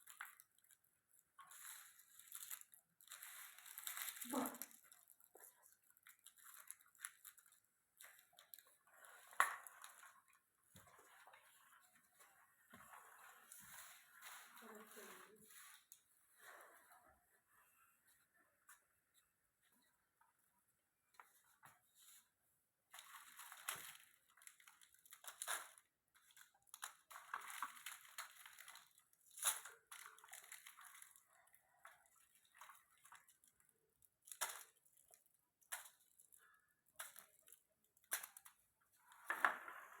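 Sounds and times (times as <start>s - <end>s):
crunching and rustling: 0.0s - 10.4s.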